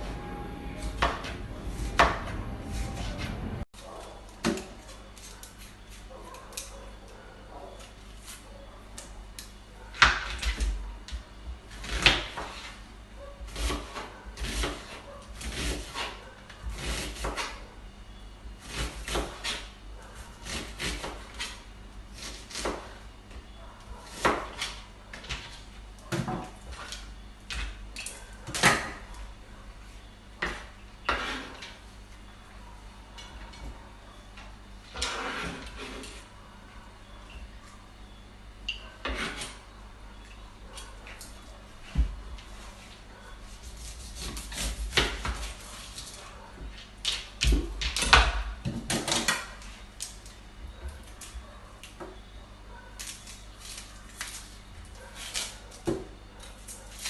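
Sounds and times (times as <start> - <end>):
low rumble: 0.0 - 3.7.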